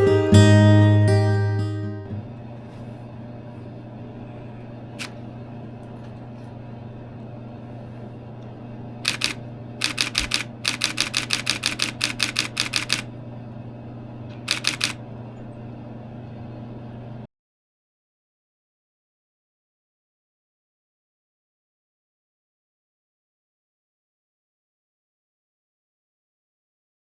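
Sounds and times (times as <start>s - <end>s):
steady low hum: 0.0s - 17.3s
camera shutter bursts: 9.1s - 13.1s, 14.5s - 15.0s.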